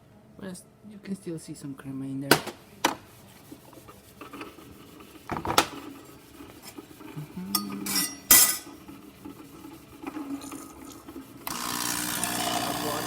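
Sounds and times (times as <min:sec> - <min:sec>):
cup and metal parts clinking: 0:07.6 - 0:08.8.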